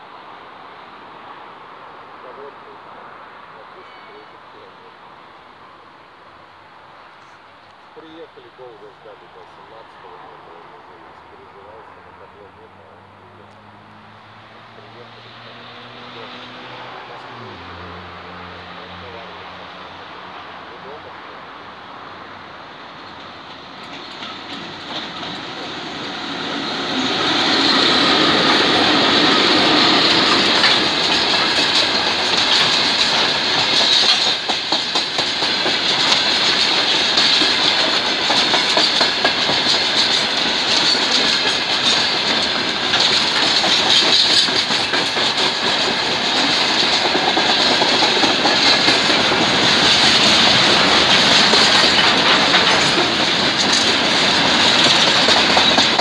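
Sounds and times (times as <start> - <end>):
electric locomotive passing: 0.0 - 56.0
freight wagons rumbling: 0.0 - 56.0
wheels clattering over rail joints: 23.0 - 56.0.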